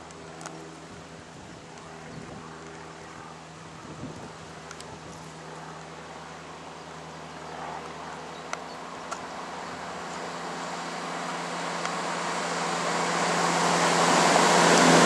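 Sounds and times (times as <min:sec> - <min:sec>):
diesel train approaching: 0:02.5 - 0:15.0.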